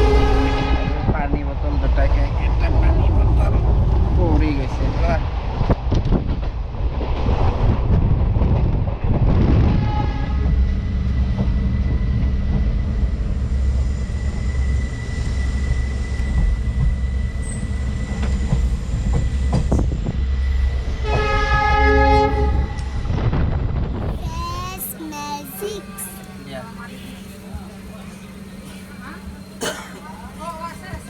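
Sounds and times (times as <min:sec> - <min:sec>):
train horn: 0:00.0 - 0:01.3, 0:09.6 - 0:10.7, 0:21.0 - 0:23.0
train rumbling on rails: 0:00.0 - 0:31.0.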